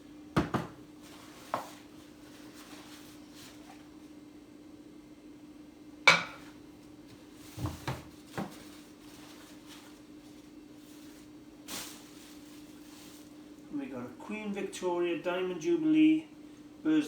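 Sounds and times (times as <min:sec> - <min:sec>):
pottery mugs clinking: 0:06.1 - 0:06.5.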